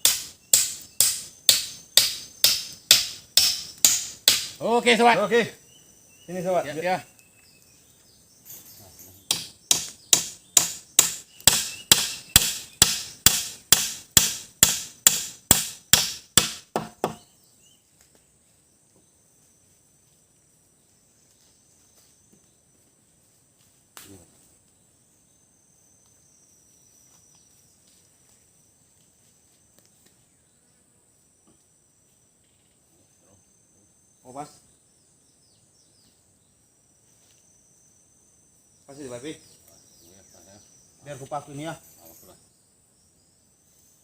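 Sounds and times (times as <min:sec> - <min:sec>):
hand tool striking wood: 0:00.0 - 0:04.6, 0:09.3 - 0:17.2
high insect drone: 0:00.0 - 0:44.0.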